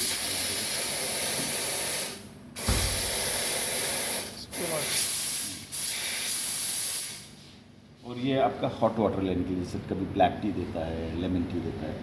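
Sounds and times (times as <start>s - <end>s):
low thump: 2.6s - 3.3s.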